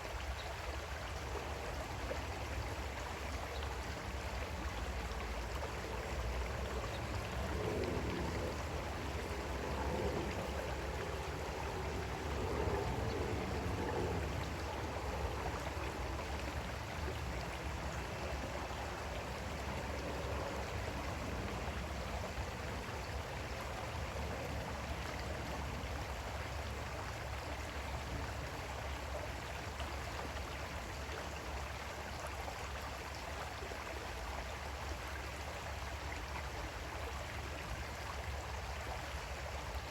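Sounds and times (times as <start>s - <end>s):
creek water flowing over stones: 0.0s - 39.9s.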